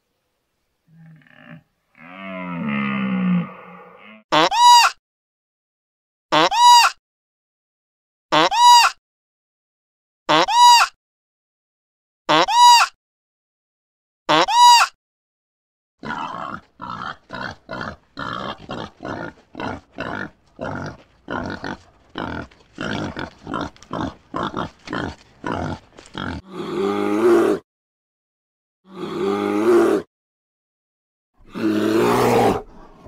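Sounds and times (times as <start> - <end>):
boar grunting: 16.0 - 27.6, 28.9 - 30.1, 31.4 - 33.0
boar long wavering calls: 16.0 - 27.6, 28.9 - 30.1, 31.4 - 33.0.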